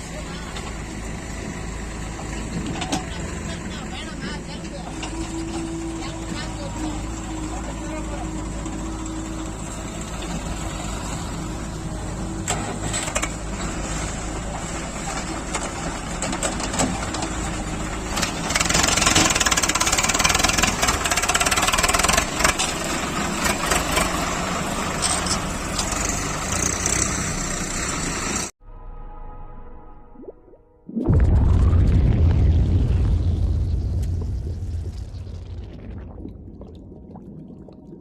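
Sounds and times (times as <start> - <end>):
tractor engine running: 0.0 - 28.5.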